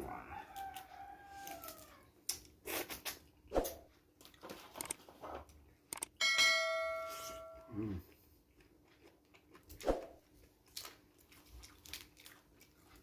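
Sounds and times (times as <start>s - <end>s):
crunchy eating sounds: 0.0s - 6.1s, 7.6s - 13.0s
ringing ding: 6.2s - 7.7s.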